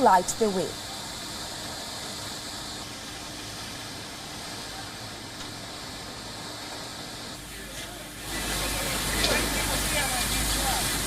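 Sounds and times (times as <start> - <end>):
steady hissing: 0.0 - 11.0.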